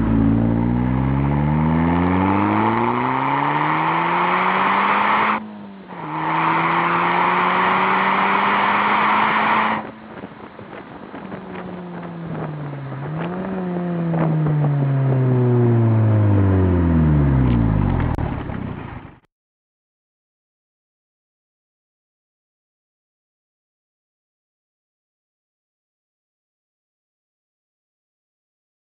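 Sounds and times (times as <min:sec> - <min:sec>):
car engine revving hard: 0:00.0 - 0:10.0.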